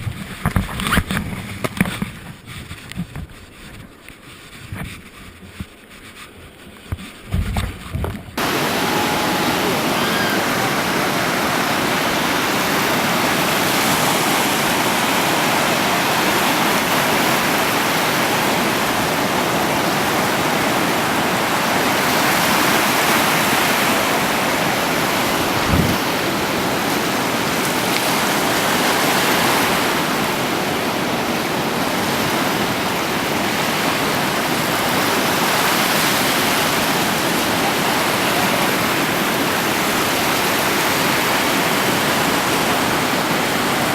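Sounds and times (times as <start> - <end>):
sea surf rushing: 8.4 - 43.9.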